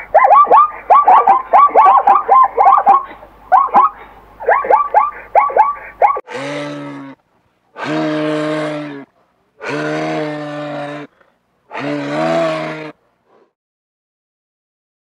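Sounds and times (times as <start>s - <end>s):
moose calling: 0.0s - 7.2s.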